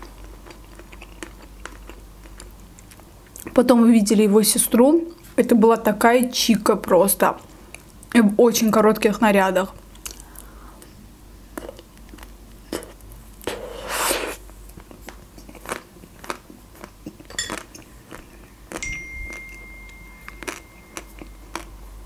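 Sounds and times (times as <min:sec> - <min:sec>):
chewing with mouth clicks: 0:00.0 - 0:03.6, 0:09.9 - 0:13.6, 0:14.6 - 0:21.7
ice cream bar crunch: 0:11.6 - 0:19.6, 0:20.2 - 0:21.7.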